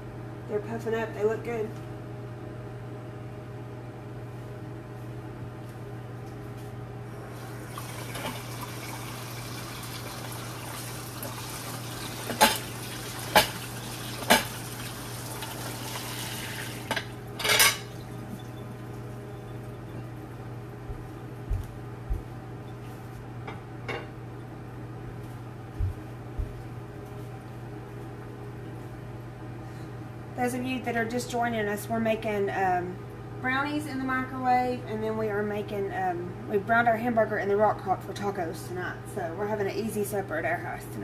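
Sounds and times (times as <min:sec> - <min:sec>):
microwave oven humming: 0:00.0 - 0:41.0
water running: 0:07.3 - 0:19.1
dishes clattering: 0:12.3 - 0:12.7, 0:14.2 - 0:14.6, 0:16.8 - 0:18.6
dishes clinking: 0:16.9 - 0:18.8, 0:23.5 - 0:24.1.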